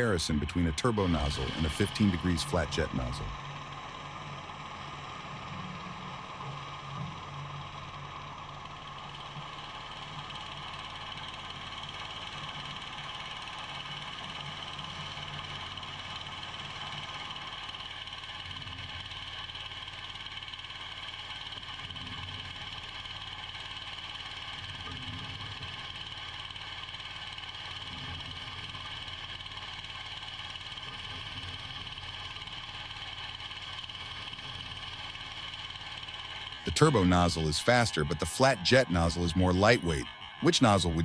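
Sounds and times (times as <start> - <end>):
pressure washer motor humming: 0.0 - 5.6, 33.4 - 41.0.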